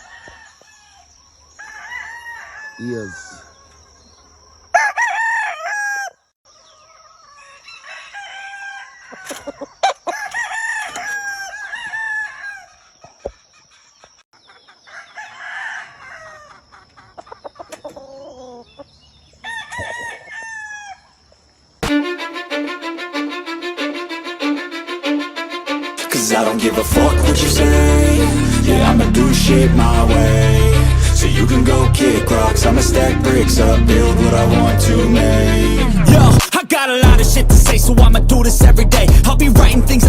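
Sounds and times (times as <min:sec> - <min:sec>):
roosters crowing: 0:00.0 - 0:06.3, 0:07.0 - 0:13.6, 0:14.7 - 0:21.2.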